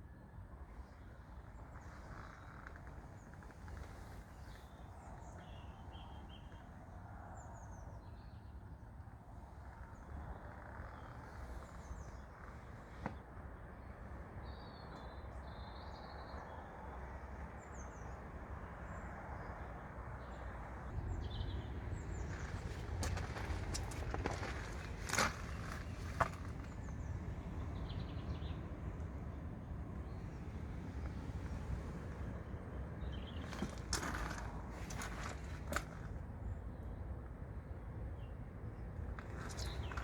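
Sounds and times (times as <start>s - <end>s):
birds chirping: 20.9s - 28.7s, 29.3s - 36.8s, 39.1s - 40.0s
steady low rumble: 20.9s - 36.6s.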